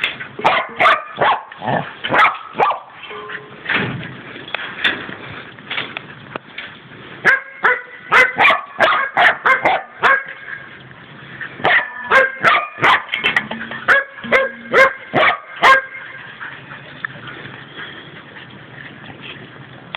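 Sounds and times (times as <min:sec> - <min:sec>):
dog barking: 0:00.4 - 0:01.5, 0:02.1 - 0:02.9, 0:07.3 - 0:10.4, 0:11.6 - 0:13.1, 0:13.9 - 0:16.0.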